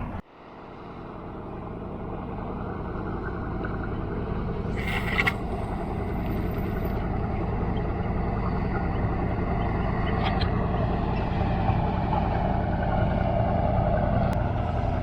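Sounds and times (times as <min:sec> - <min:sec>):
low harbour rumble: 0:00.0 - 0:15.0
short scraping rattle: 0:04.8 - 0:06.9.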